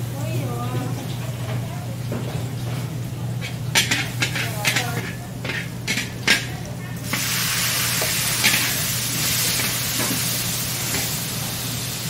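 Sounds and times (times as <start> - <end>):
tomatoes sizzling in a wok: 0.0 - 12.0
metal spatula scraping a wok: 3.4 - 6.4.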